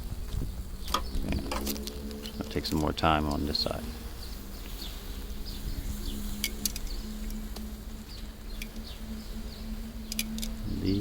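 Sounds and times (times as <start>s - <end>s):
birds chirping: 0.0s - 11.0s
steady low hum: 0.0s - 11.0s
sharp ticks: 6.4s - 8.9s, 10.0s - 10.6s.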